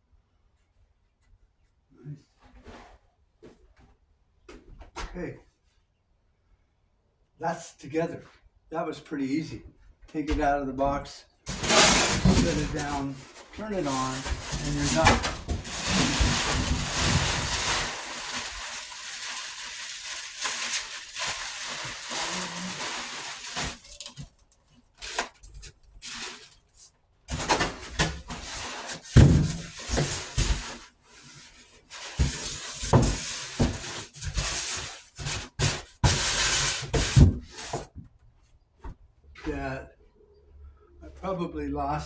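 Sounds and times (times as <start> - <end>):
packaging rustling: 11.5 - 30.9.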